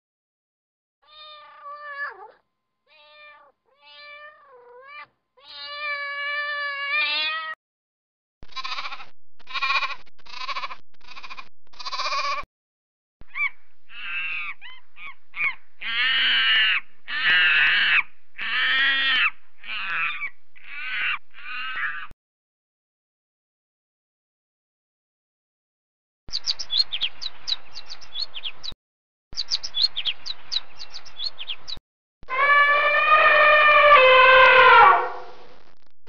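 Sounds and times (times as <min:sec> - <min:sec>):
cat meowing: 0:01.0 - 0:07.6, 0:08.6 - 0:12.4
goat kids bleating: 0:08.5 - 0:12.4
loud animal calls: 0:08.5 - 0:12.4, 0:13.3 - 0:22.1, 0:32.3 - 0:35.4.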